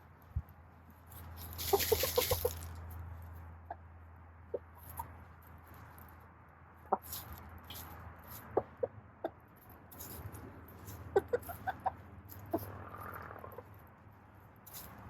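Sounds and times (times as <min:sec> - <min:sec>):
hens clucking and cooing: 0:01.6 - 0:02.7, 0:10.9 - 0:13.8.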